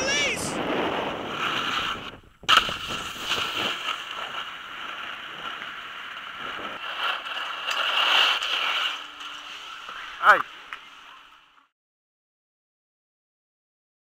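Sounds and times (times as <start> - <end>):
snowboard scraping through snow: 0.0 - 10.5.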